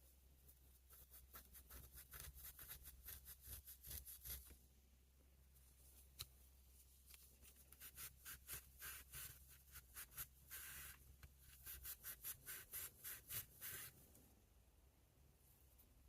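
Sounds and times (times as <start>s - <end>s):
faint rubbing strokes: 5.6s - 14.2s.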